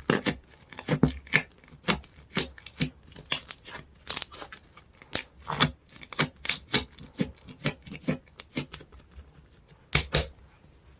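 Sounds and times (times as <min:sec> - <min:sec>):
sticky slime clicks and pops: 0:09.9 - 0:10.3.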